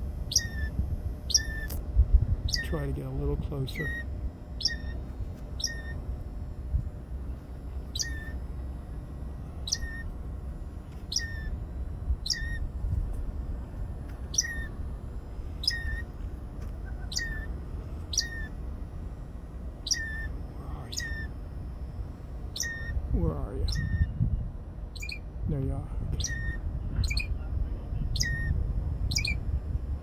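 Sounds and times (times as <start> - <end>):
wind rumble on microphone: 0.0 - 20.2, 22.5 - 30.0
songbird calling: 0.3 - 1.8, 2.4 - 2.9, 3.6 - 5.0, 5.6 - 6.0, 7.9 - 8.4, 9.6 - 10.1, 11.0 - 11.6, 12.2 - 12.7, 14.2 - 14.8, 15.5 - 18.6, 19.8 - 21.5, 22.5 - 27.4, 28.0 - 29.5.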